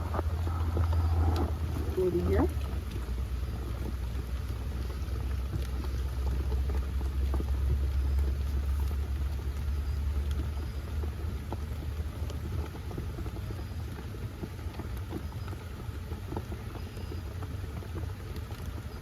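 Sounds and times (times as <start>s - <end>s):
wind rumbling: 0.0s - 10.6s
rain pattering on a shell: 0.0s - 19.0s.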